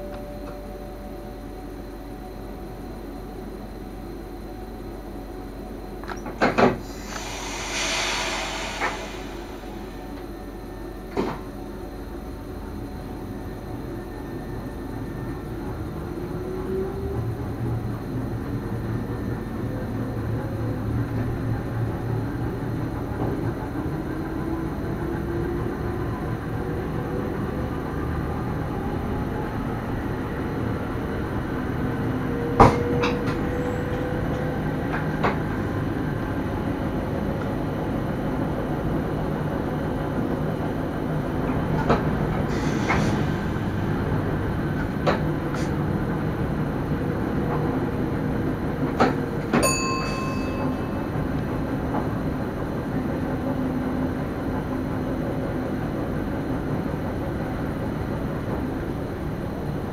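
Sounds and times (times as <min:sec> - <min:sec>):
train rolling noise with hum: 0:00.0 - 0:59.9
short high tone: 0:06.8 - 0:10.6, 0:49.6 - 0:51.3.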